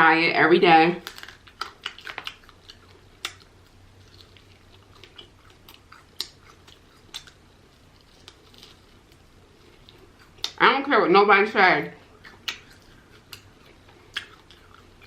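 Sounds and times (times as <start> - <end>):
person chewing: 1.0 - 10.6, 12.0 - 15.0.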